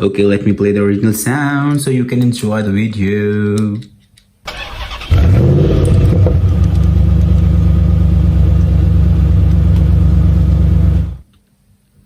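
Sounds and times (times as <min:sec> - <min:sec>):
recorded car engine rumble: 0:05.0 - 0:11.2.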